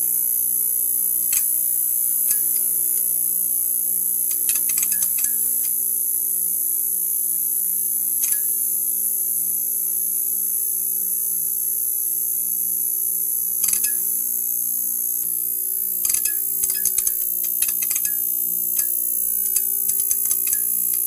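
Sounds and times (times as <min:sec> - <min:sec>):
neon sign buzzing: 0:00.0 - 0:06.6, 0:13.6 - 0:21.0
sharp crackling clicks: 0:16.0 - 0:18.2, 0:18.8 - 0:21.0.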